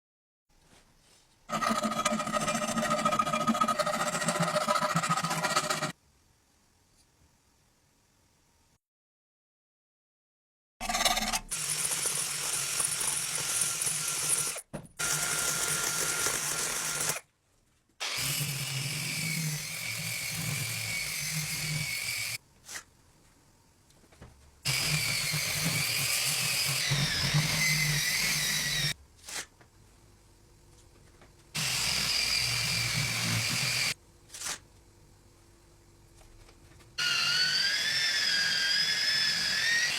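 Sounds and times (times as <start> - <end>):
power tool grinding rusted steel: 1.5 - 5.9, 10.8 - 17.2, 18.0 - 22.4, 24.7 - 29.0, 31.6 - 34.0.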